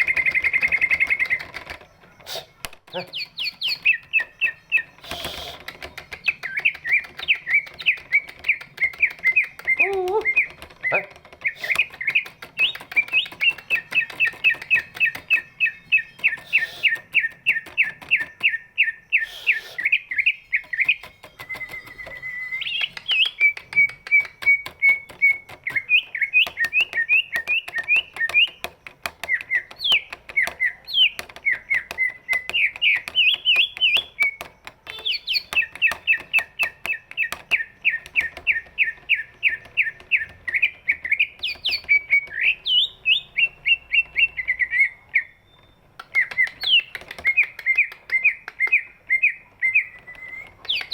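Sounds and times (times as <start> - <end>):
bird singing rapid chirps: 0.0 - 50.9
bird whistling sliding notes: 6.2 - 28.5.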